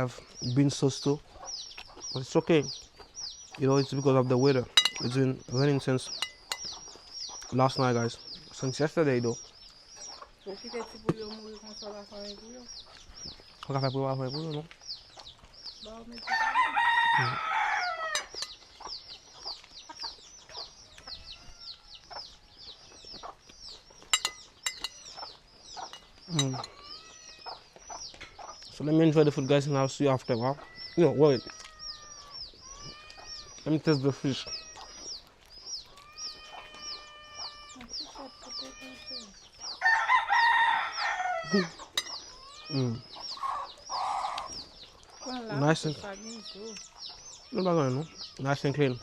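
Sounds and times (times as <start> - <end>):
bird chirping high falling chirps: 0.0 - 49.0
chickens clucking: 0.0 - 49.0
rooster crowing: 16.3 - 18.4, 39.8 - 42.8.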